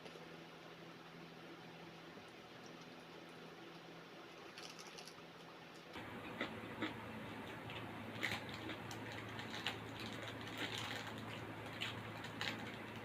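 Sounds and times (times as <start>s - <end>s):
low steady hum: 0.0s - 13.0s
wet chewing sounds: 5.8s - 13.0s.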